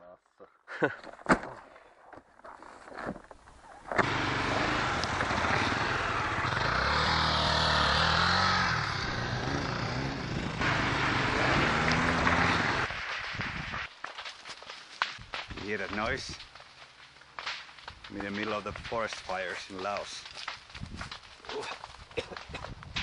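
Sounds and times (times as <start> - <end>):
dirt bike engine running: 4.0 - 12.9.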